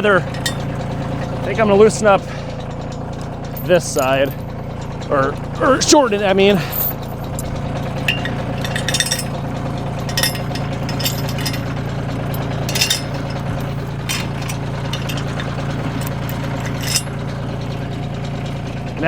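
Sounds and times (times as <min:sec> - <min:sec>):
tractor diesel engine idling: 0:00.0 - 0:19.0
metallic clinks: 0:00.2 - 0:01.4, 0:06.6 - 0:17.4.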